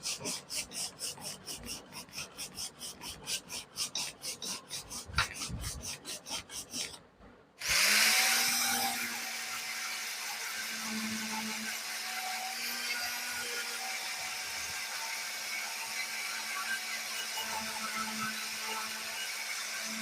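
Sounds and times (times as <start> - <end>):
electric power tool running: 7.6 - 12.6.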